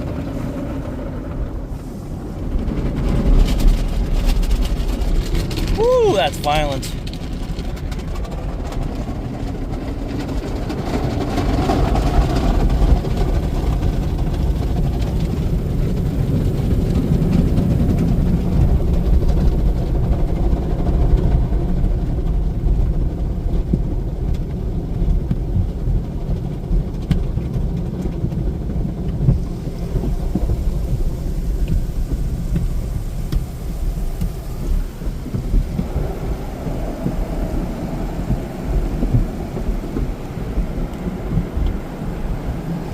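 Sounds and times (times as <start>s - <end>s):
water spraying on car: 0.0s - 42.9s
car wash brushes beating on car: 22.7s - 42.9s.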